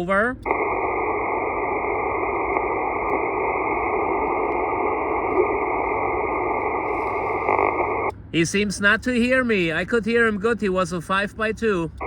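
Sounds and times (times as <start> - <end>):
radio static hiss: 0.0 - 8.6.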